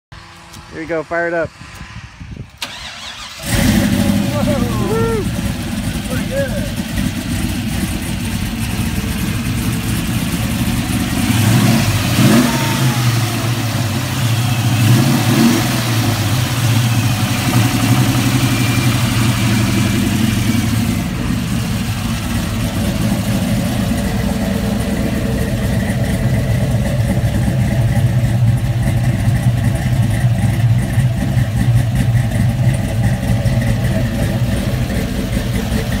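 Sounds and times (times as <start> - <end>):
car engine revving and idling: 0.1 - 36.0.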